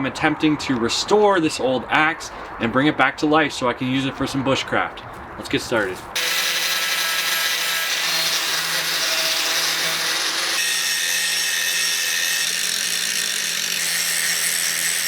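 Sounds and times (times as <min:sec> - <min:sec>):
power tool grinding metal: 0:06.2 - 0:15.0.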